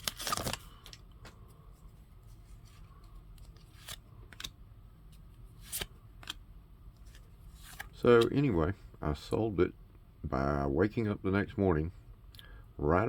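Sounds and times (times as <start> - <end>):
trading cards crinkling: 0.0 - 6.4, 7.0 - 8.5
cards swishing and clicking: 0.0 - 8.4.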